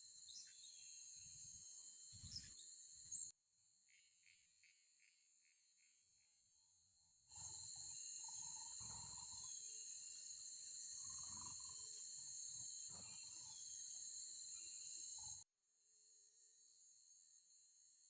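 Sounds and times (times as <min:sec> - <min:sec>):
insects buzzing: 0:07.3 - 0:15.4.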